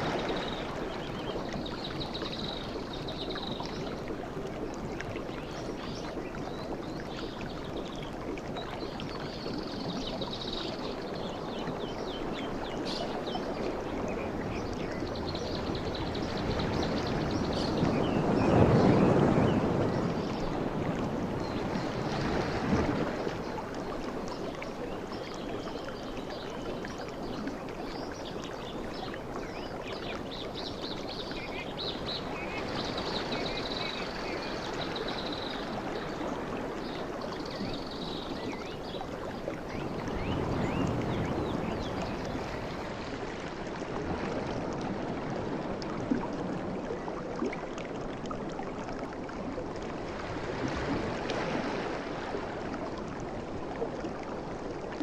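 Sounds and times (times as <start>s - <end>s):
sea waves washing: 0.0s - 1.1s.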